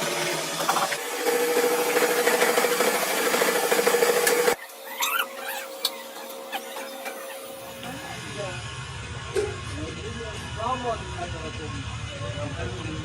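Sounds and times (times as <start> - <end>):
workshop background sound: 0.0 - 12.9.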